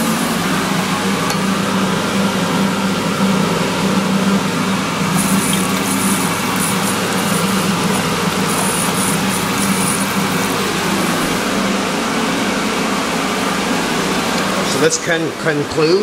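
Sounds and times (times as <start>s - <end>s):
hand dryer blowing: 4.9s - 11.7s.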